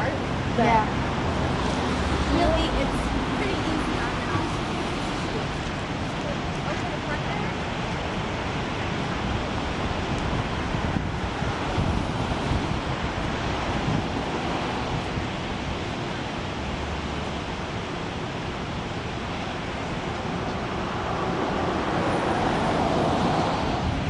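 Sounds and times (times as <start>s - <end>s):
ocean surf washing: 0.0s - 24.0s
wind rumbling on microphone: 0.0s - 24.0s.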